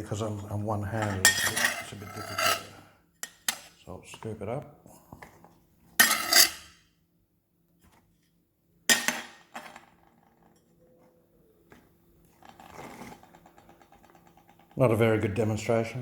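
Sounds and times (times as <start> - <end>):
utensil scraping cooking pot: 0.8 - 3.7, 6.0 - 6.8, 12.3 - 14.8.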